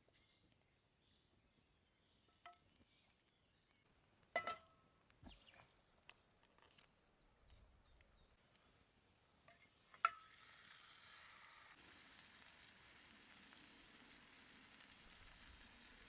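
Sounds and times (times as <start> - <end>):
metal cookware clinking: 4.4 - 4.7.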